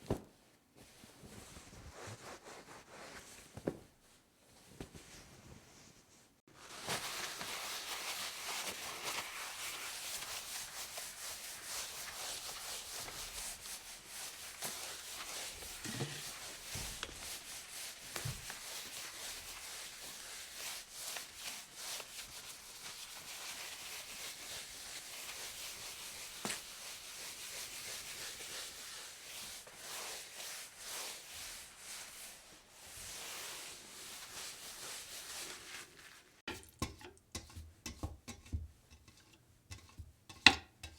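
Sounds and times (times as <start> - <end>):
rubbing and scraping with crackles: 0.0 - 36.5.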